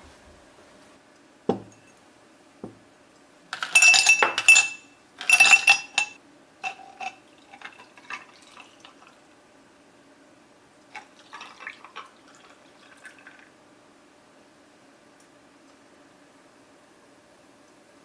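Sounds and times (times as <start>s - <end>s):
dull knock: 1.5s - 1.7s, 2.6s - 2.8s
glassware clinking: 1.5s - 2.0s, 3.6s - 8.6s.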